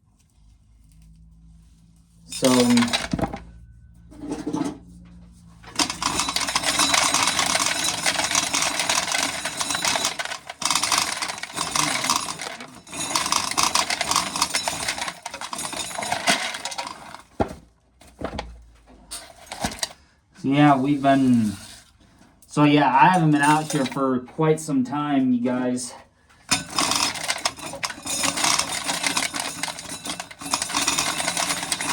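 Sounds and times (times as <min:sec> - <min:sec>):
corn kernels rattling: 0:02.3 - 0:03.3, 0:05.7 - 0:17.4, 0:23.2 - 0:24.0, 0:26.5 - 0:31.9.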